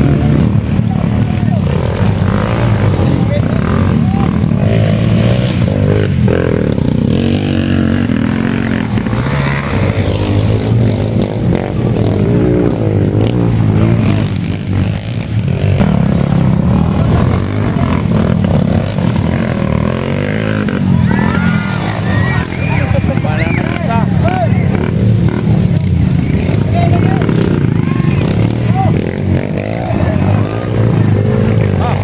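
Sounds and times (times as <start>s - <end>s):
dirt bike engines racing: 0.0s - 32.0s.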